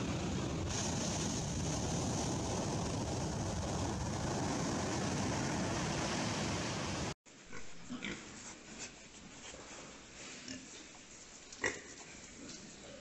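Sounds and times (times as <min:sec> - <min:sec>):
wind and surf: 0:00.0 - 0:07.2.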